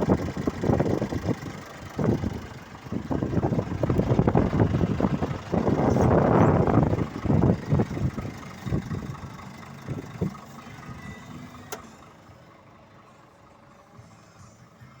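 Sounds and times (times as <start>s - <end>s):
truck diesel engine idling: 0.0s - 15.0s
wind gusting on microphone: 0.1s - 9.3s.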